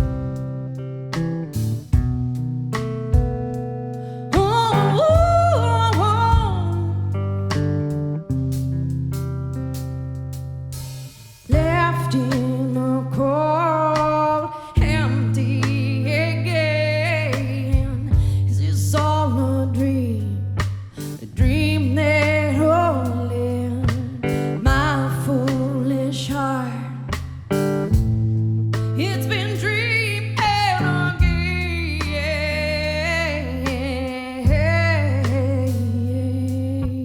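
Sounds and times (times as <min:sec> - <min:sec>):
guitar chords: 0:00.0 - 0:18.4, 0:19.1 - 0:37.0
person singing with vibrato: 0:04.3 - 0:07.0, 0:29.0 - 0:37.0.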